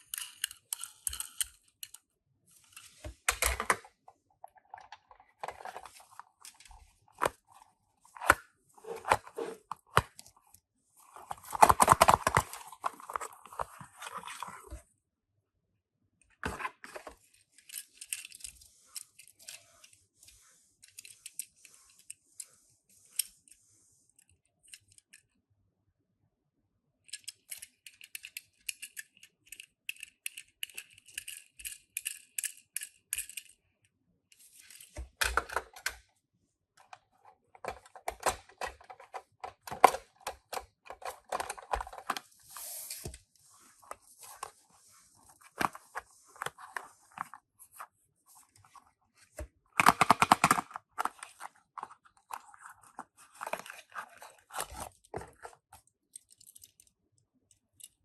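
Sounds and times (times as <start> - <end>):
toy cars clicking and rattling: 0.0 - 2.0, 27.1 - 33.6.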